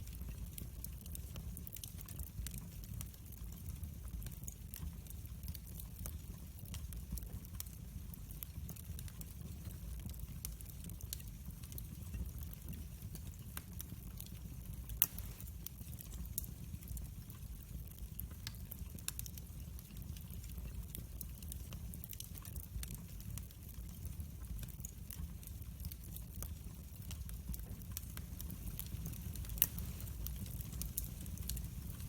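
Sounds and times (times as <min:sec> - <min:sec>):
wood fire crackling: 0:00.0 - 0:32.0
fire pop: 0:14.9 - 0:16.3, 0:27.1 - 0:32.0.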